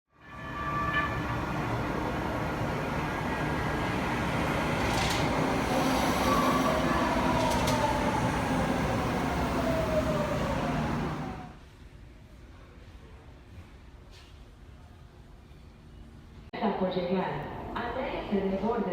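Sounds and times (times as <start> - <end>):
train rumbling on rails: 0.1 - 11.9.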